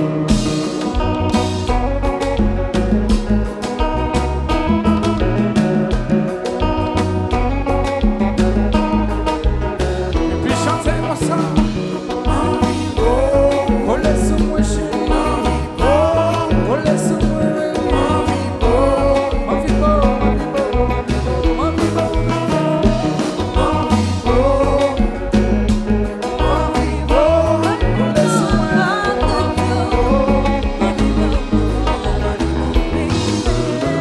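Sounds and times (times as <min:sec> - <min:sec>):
guitar: 0:00.0 - 0:34.0
heavy bass beat: 0:00.0 - 0:34.0
person singing: 0:10.2 - 0:34.0.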